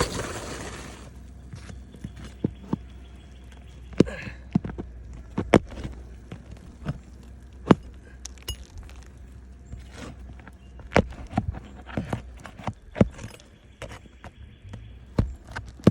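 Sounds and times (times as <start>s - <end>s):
low steady hum: 0.0s - 15.9s.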